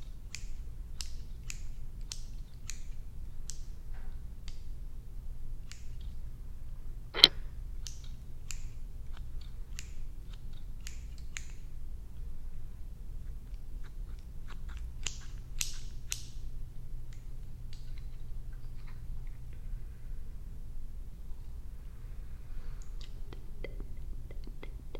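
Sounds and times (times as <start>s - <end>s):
steady low hum: 0.0s - 24.9s
scissors snipping: 0.3s - 3.8s, 5.6s - 6.2s, 7.2s - 11.7s, 13.3s - 16.4s.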